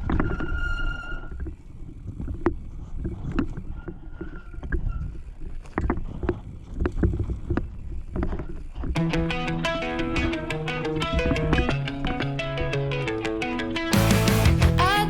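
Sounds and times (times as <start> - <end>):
short high squeal: 0.3 - 1.4.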